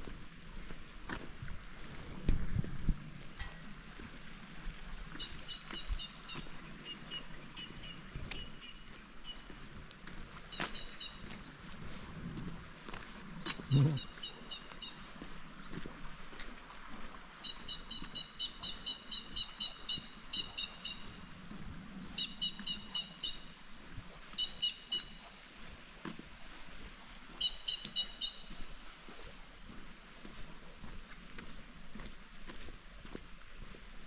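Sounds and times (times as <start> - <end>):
bird chirping rapidly: 13.7 - 14.2.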